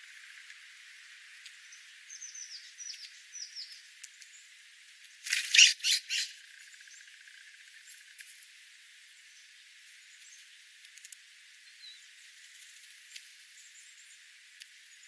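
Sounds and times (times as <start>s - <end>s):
harsh bird squawks: 5.4s - 6.4s
whistled bird chirps: 5.5s - 6.3s.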